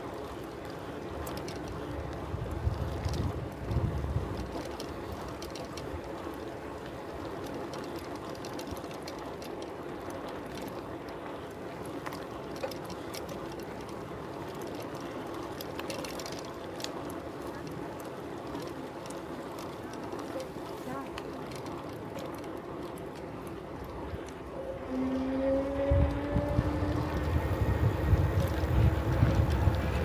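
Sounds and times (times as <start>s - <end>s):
bicycle tyres and drivetrain hum: 0.0s - 30.0s
wind buffeting microphone: 1.9s - 6.0s, 25.5s - 30.0s.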